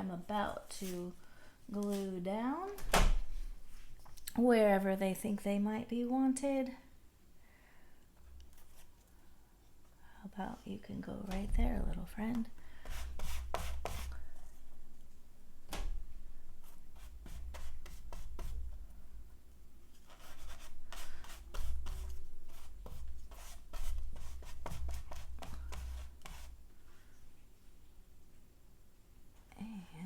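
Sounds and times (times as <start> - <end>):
hands rubbing paper: 20.0 - 26.6.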